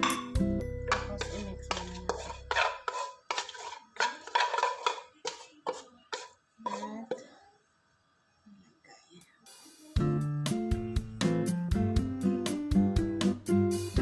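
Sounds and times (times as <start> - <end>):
background music: 0.0 - 2.8, 9.5 - 14.0
metal utensil scraping a pan: 0.9 - 7.2.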